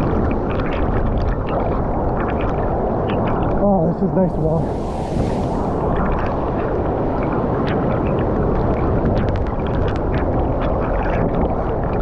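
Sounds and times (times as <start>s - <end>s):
rushing river water: 3.8s - 7.6s.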